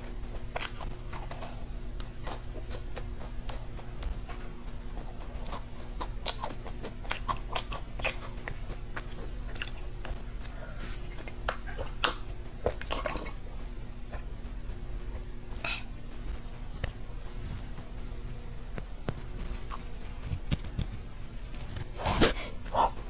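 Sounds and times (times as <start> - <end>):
faint steady hum: 0.0 - 23.0
mouth chewing: 0.1 - 14.3, 19.1 - 23.0
wet mouth clicks and smacks: 0.5 - 0.9, 5.4 - 10.5, 11.2 - 13.3.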